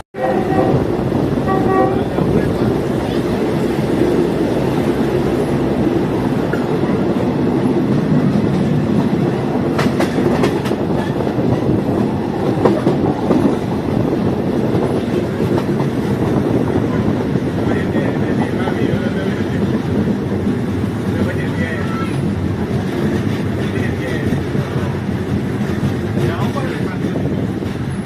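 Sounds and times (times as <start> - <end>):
train rumbling along track: 0.2 - 28.0
wheels clicking over rail joints: 6.4 - 16.6.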